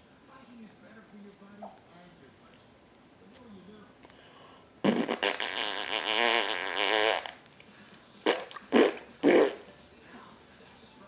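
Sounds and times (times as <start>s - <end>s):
baby blowing raspberries: 4.8s - 7.4s, 8.2s - 9.6s.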